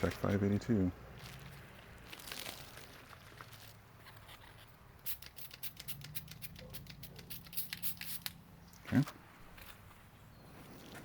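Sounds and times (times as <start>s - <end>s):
spray bottle being shaken: 5.0s - 8.4s.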